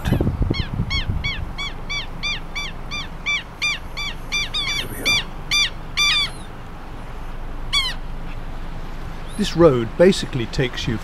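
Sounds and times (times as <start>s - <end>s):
bird rapid short calls: 0.0s - 6.5s.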